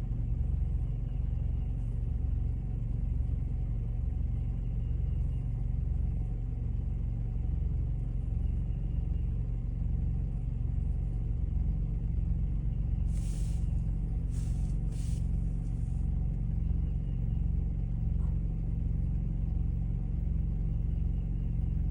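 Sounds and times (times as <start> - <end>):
engine idling rumble: 0.0 - 21.9
short hisses: 13.1 - 16.0.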